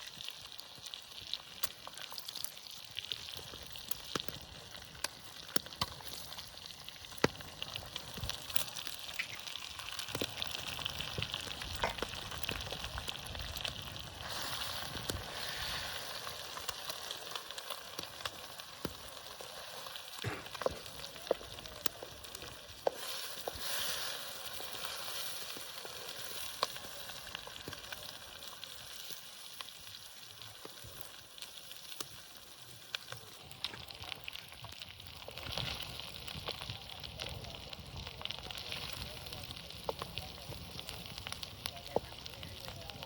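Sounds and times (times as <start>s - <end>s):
eggs sizzling in fat: 0.0s - 43.0s
fat spitting and popping: 11.6s - 12.2s, 20.2s - 21.0s.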